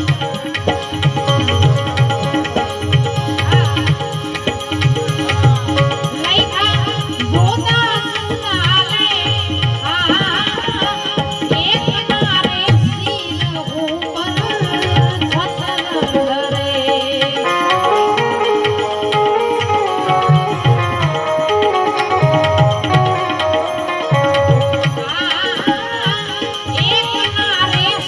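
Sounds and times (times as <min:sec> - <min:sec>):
tabla rhythm: 0:00.0 - 0:28.0
ornamented melody line: 0:12.9 - 0:28.0.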